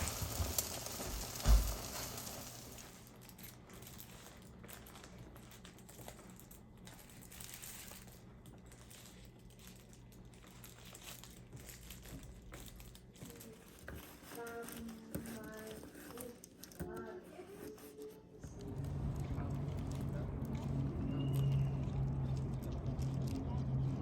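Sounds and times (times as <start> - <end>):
light clicking and crinkling: 0.0 - 24.0
low hum: 18.5 - 24.0.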